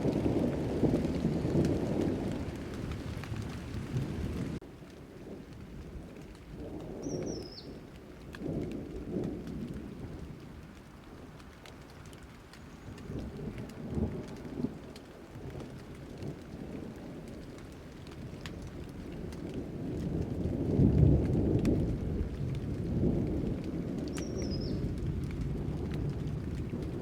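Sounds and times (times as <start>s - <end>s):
rolling thunder: 0.0s - 4.6s, 12.9s - 27.0s
steady rain: 0.0s - 27.0s.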